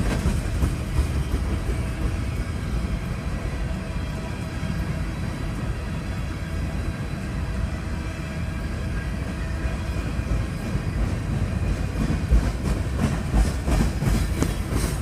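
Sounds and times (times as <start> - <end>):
heavy train thumps: 0.0 - 2.9, 10.4 - 15.0
train wheels rumbling on rails: 0.0 - 15.0.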